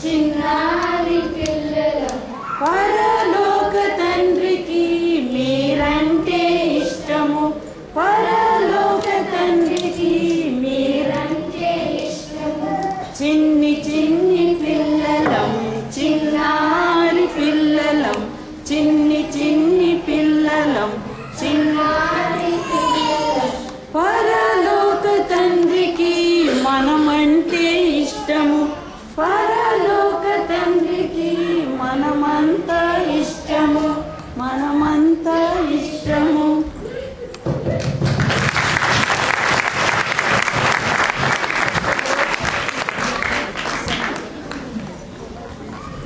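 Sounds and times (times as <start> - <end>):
children singing: 0.0 - 37.0.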